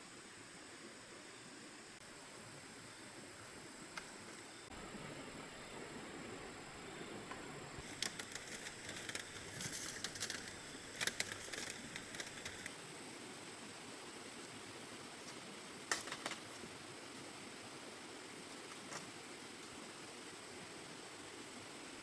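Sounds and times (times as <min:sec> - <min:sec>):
faint steady hiss: 0:00.0 - 0:22.0
light clicks and rustles: 0:07.3 - 0:12.7.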